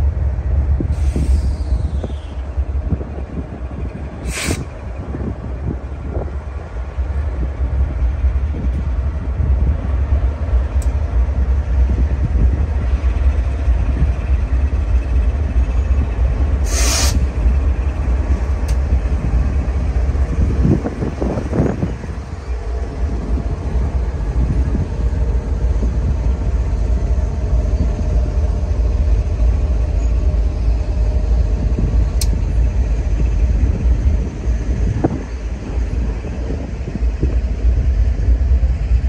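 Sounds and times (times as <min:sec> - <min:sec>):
locomotives rumbling: 0:01.6 - 0:39.0
short hisses: 0:04.2 - 0:04.7, 0:16.6 - 0:17.3.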